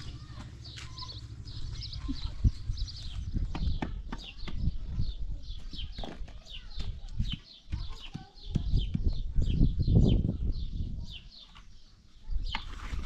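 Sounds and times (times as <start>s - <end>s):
small birds chirping: 0.0s - 13.0s
low rumble: 1.0s - 3.5s.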